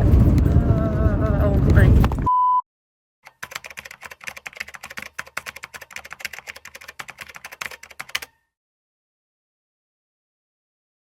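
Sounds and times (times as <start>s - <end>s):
rapid keyboard typing: 3.3s - 8.4s.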